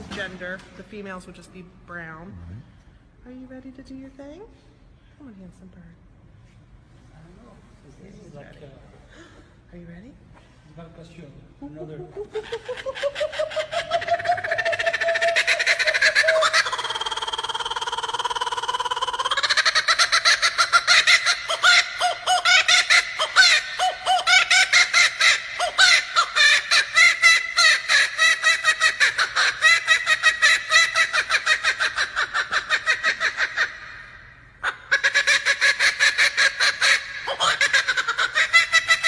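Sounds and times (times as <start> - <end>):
kookaburra laughing call: 11.7 - 39.0.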